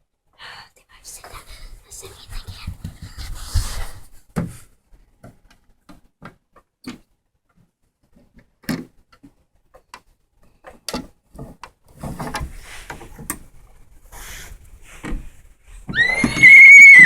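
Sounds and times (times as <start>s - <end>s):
high horse whinny: 15.9s - 17.0s.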